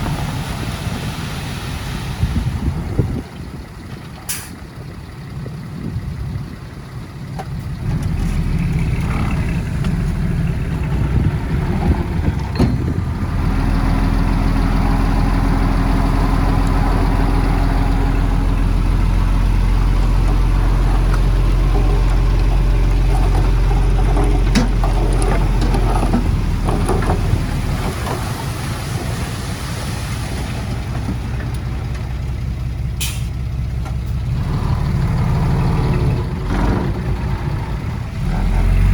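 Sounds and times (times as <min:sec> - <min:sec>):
diesel engine under load: 0:00.0 - 0:38.9.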